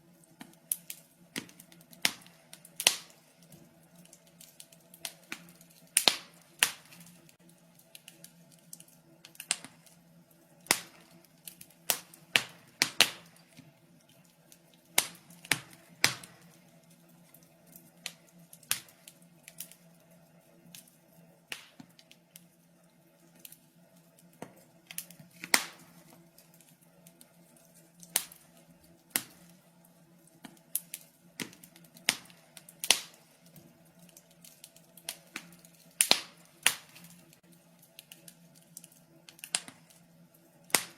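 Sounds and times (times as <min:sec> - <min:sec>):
wood fire popping and snapping: 0:00.0 - 0:40.9.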